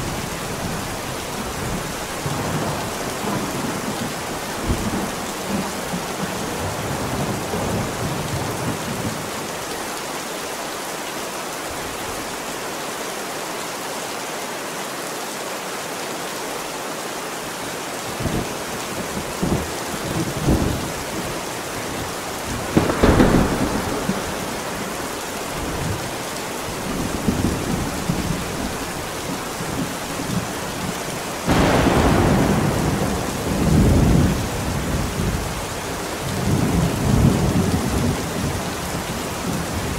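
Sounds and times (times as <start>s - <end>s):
heavy rain falling: 0.0s - 39.9s
thunder rumbling: 18.2s - 39.9s
sharp crack of thunder: 22.5s - 26.0s, 31.4s - 35.4s.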